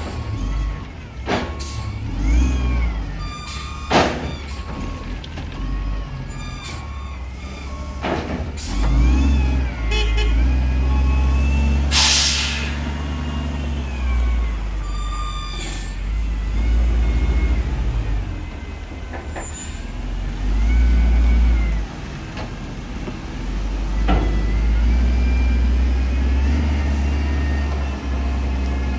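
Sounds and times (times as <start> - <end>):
heavy diesel engines revving: 0.0 - 28.9
air brake hiss: 11.9 - 12.8.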